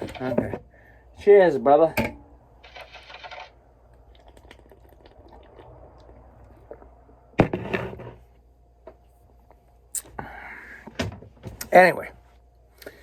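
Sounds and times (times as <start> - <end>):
man sipping beer: 4.0 - 7.3, 9.9 - 10.4.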